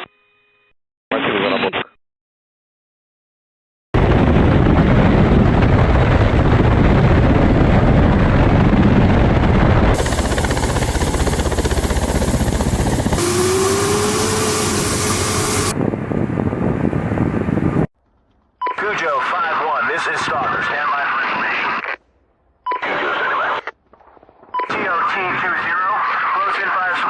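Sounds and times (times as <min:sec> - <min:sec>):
helicopter rotors and engines: 0:04.0 - 0:17.9, 0:24.4 - 0:27.0
steady hum rising in pitch: 0:10.0 - 0:16.7.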